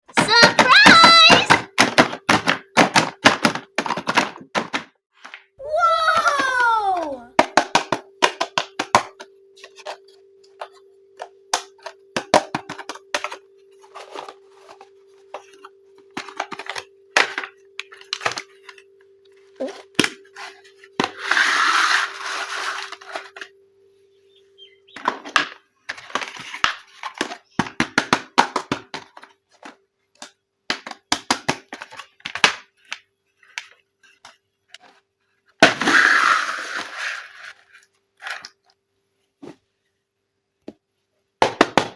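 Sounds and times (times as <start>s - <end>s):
faint steady hum: 5.6s - 27.7s.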